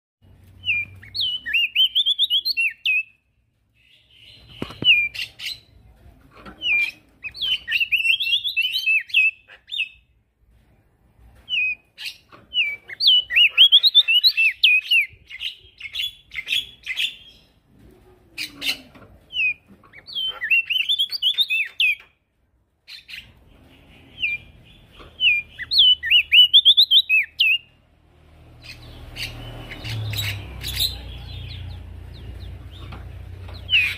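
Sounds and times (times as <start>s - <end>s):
bird singing high chattering notes: 0.6s - 3.2s, 6.7s - 10.0s, 11.5s - 17.5s, 19.4s - 22.0s, 22.9s - 27.7s, 28.5s - 33.9s.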